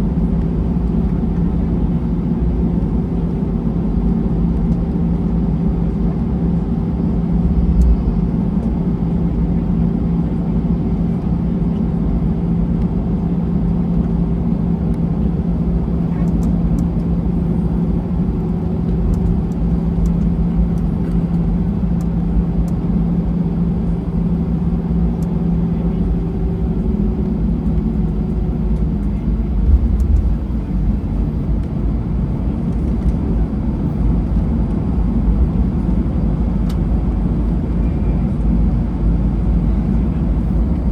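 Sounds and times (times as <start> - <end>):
low rumble of rolling aircraft: 0.0 - 40.9
steady engine hum: 0.0 - 40.9.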